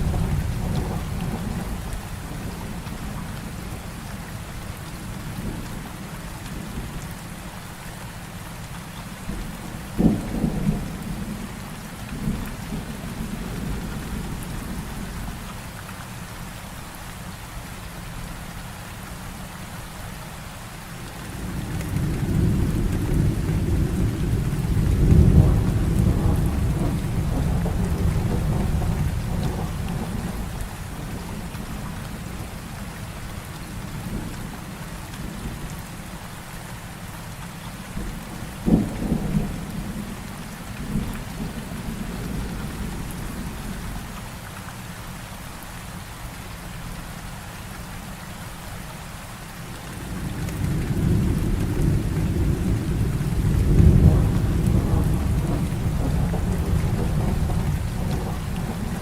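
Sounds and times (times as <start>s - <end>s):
thunder rumbling and cracking: 0.0s - 3.8s, 9.3s - 15.4s, 21.3s - 35.7s, 38.0s - 44.1s, 49.9s - 59.0s
heavy rain falling: 0.0s - 59.0s.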